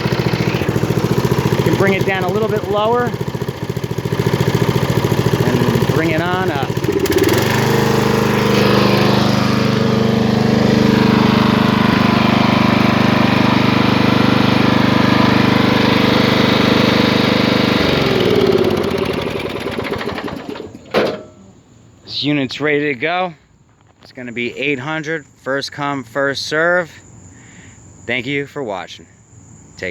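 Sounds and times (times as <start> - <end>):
lawn tractor engine running: 0.0 - 21.5.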